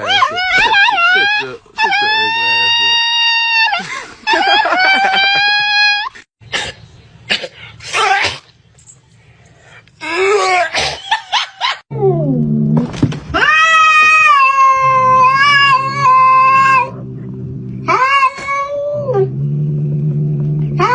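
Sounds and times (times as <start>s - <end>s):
cat yowling: 13.4s - 17.0s
steady low hum: 15.7s - 18.0s.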